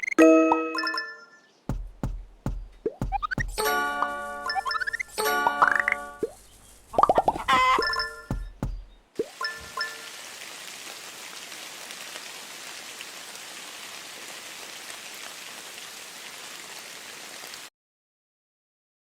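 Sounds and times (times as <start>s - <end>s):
steady hiss: 3.4s - 12.4s.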